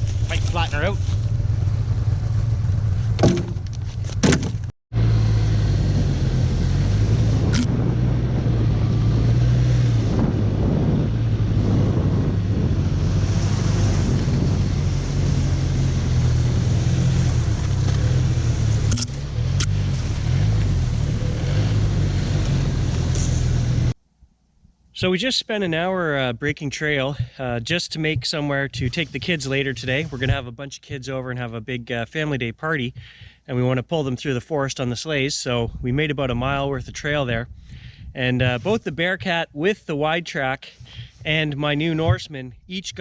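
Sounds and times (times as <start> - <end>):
snowmobile engine running: 0.0 - 4.2, 5.0 - 23.9.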